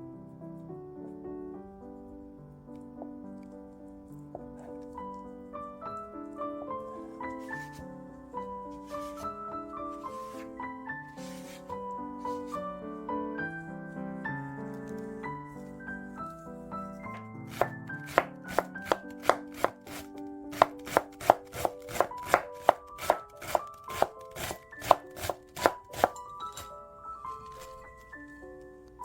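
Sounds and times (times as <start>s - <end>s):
light piano music: 0.0s - 29.0s
knife chopping on cutting board: 17.5s - 26.2s.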